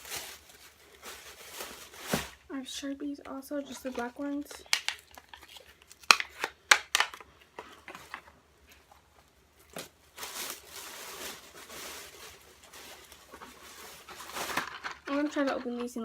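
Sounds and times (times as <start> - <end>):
package crinkling and rustling: 0.0 - 16.0
package clicks and taps: 4.7 - 5.4, 6.0 - 7.3.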